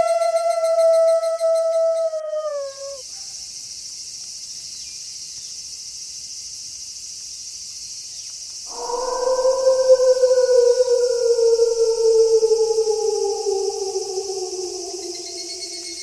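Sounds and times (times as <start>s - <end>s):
wolf howling: 0.0s - 3.0s, 8.7s - 16.0s
night insects chorus: 0.0s - 16.0s.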